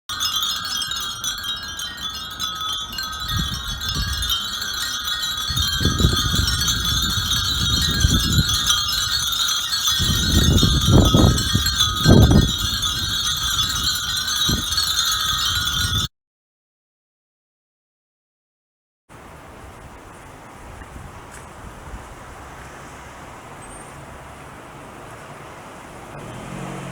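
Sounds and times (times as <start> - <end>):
wind bells tinkling: 0.1 - 16.1.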